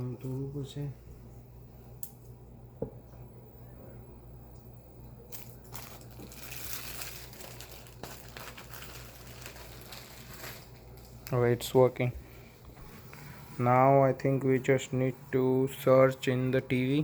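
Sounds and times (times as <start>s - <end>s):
plastic crinkling and rustling: 5.3s - 13.4s.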